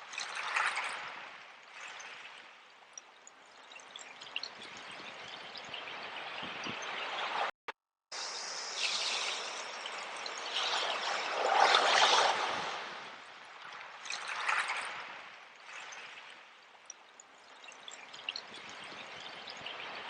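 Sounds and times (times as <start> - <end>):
sea water washing and splashing: 8.3 - 16.9.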